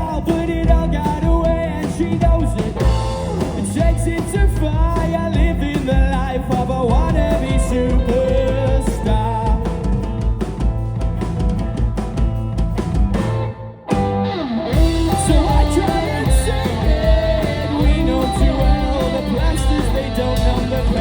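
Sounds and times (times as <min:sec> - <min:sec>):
person singing: 0:00.0 - 0:10.1, 0:14.8 - 0:21.0
live rock band playing: 0:00.0 - 0:21.0
kick drum beat: 0:03.8 - 0:13.4, 0:14.8 - 0:21.0.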